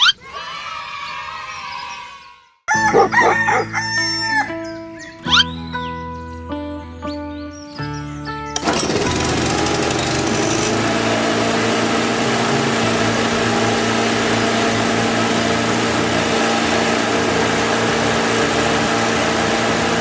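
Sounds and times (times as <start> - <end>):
small motor humming: 8.6 - 20.0.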